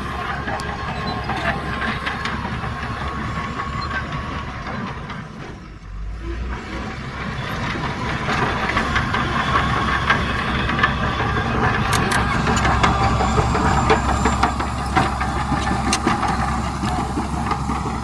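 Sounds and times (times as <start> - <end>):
heavy diesel machinery running: 0.0 - 18.0
metallic clanks and rattles: 7.2 - 18.0.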